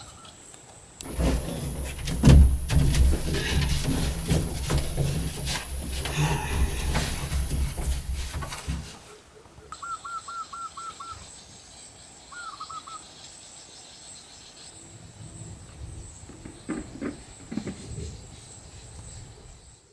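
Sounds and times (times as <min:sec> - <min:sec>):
insect droning: 0:01.0 - 0:09.0
soft knocks: 0:01.0 - 0:09.0.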